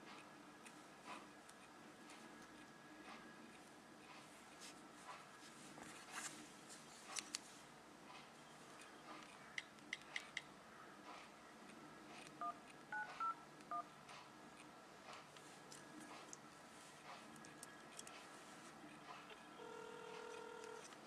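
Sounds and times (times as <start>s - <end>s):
keypad touch-tone beeps: 12.4s - 13.9s.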